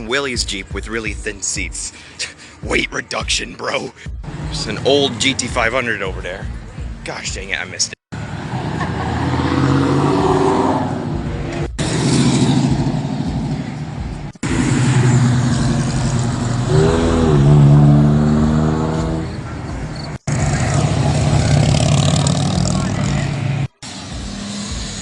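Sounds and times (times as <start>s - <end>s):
car engine revving: 8.2s - 25.0s
car engines running: 8.2s - 25.0s.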